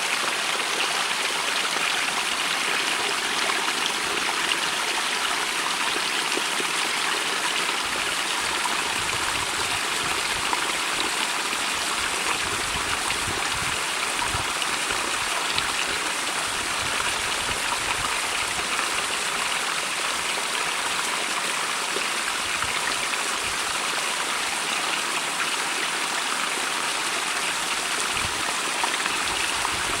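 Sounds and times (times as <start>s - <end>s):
stream babbling over rocks: 0.0s - 30.0s.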